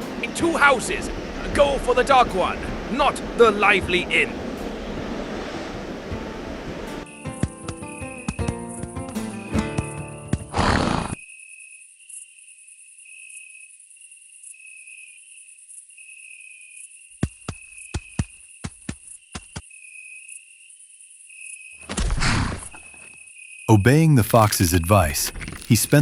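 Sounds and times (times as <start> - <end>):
night insects chirring: 0.0 - 22.0, 22.8 - 26.0
background music: 5.7 - 10.6.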